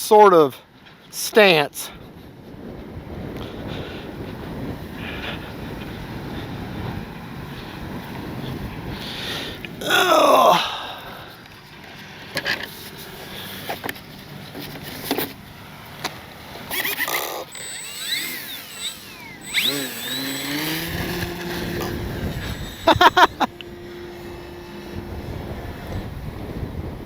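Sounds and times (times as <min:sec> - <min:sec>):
wind noise on microphone: 0:01.8 - 0:10.0, 0:17.6 - 0:27.0
electric motor whine: 0:15.7 - 0:27.0.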